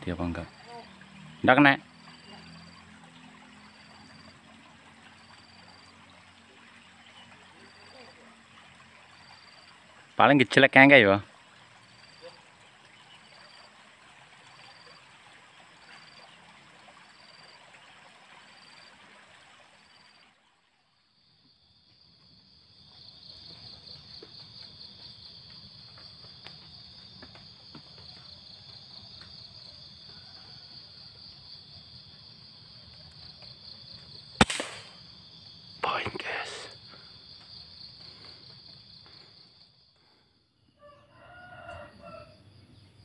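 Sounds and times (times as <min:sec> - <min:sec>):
insects chirring: 0:00.0 - 0:43.0
air rifle shot: 0:34.4 - 0:35.0
sharp crack: 0:34.4 - 0:35.1.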